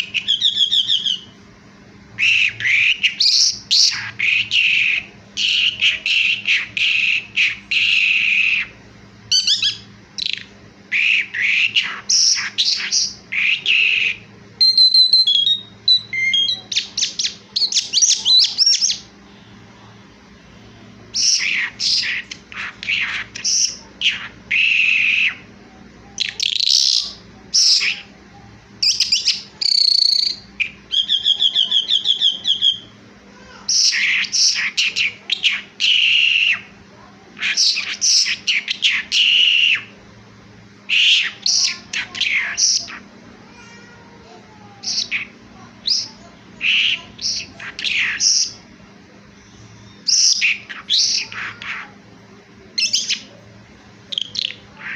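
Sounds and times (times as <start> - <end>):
bird singing chirps and whistles: 0.0 - 1.4, 2.2 - 19.1, 21.1 - 25.5, 26.2 - 28.1, 28.8 - 33.0, 33.7 - 36.7, 37.4 - 40.0, 44.8 - 48.6, 49.4 - 51.9, 52.8 - 53.4, 54.1 - 54.9.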